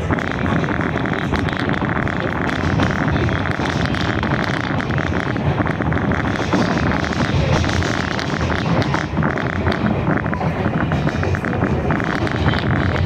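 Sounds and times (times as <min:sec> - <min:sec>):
train wheels rumbling and rattling: 0:00.0 - 0:13.0
wind noise: 0:00.0 - 0:13.0.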